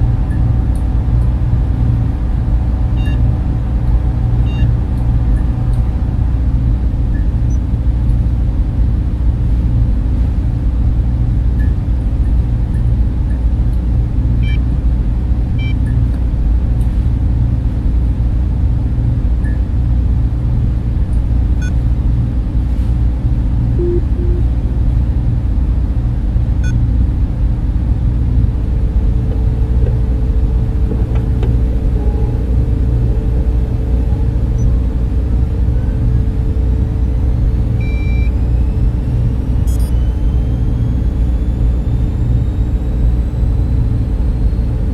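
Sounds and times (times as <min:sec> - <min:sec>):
cooling fans running: 0:00.0 - 0:44.9
faint thin tone: 0:23.8 - 0:24.6.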